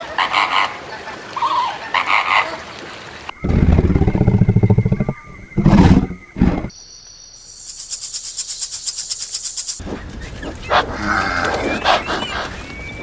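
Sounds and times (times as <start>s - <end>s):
low pulsing croaking calls: 3.3s - 6.7s, 9.8s - 13.0s
higher animal calls: 9.8s - 13.0s.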